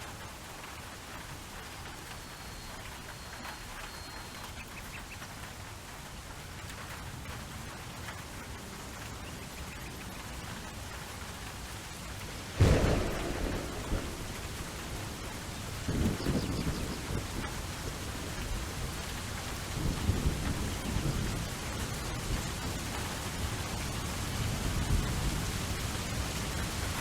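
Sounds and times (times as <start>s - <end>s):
steady rain: 0.0s - 27.0s
thunder: 12.5s - 18.5s.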